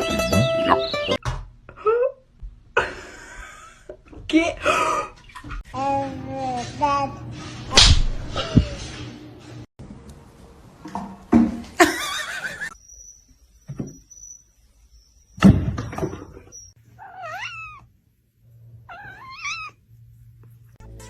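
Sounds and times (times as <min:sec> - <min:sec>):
cat meowing: 0:17.0 - 0:17.9, 0:18.9 - 0:19.8.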